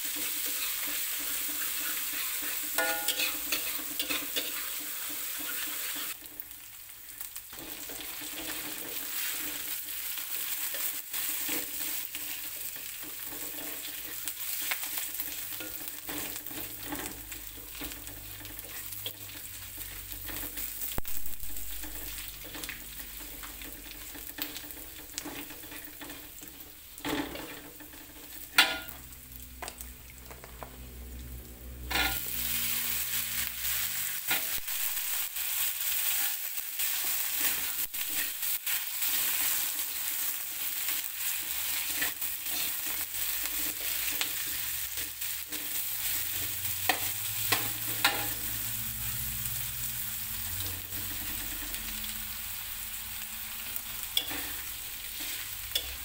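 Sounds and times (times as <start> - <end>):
food sizzling in a wok: 0.0 - 56.0.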